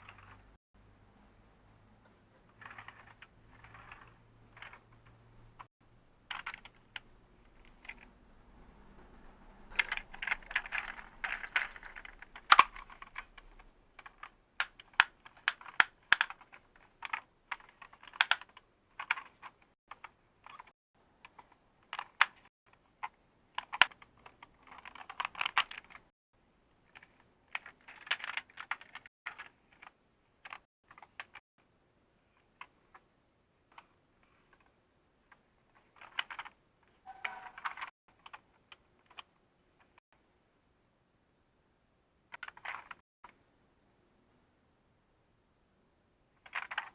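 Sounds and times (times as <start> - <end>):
plastic toy pieces clattering: 9.7 - 19.6, 37.2 - 37.9.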